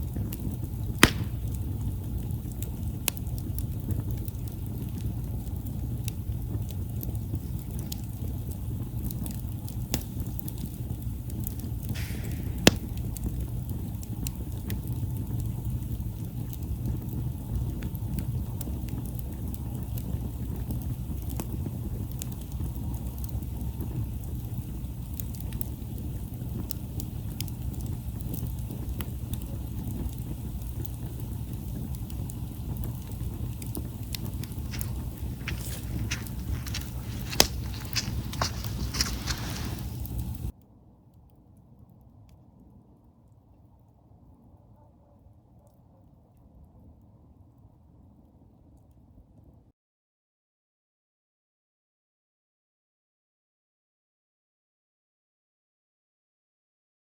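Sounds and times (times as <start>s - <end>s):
campfire crackling and popping: 0.0s - 40.6s.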